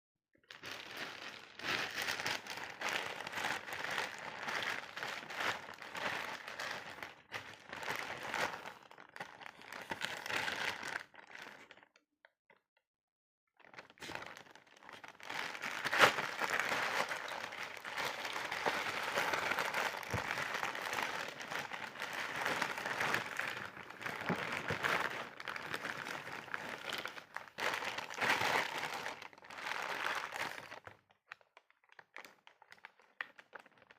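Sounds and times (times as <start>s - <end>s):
packaging crinkling and rustling: 0.5s - 11.9s, 13.6s - 33.9s.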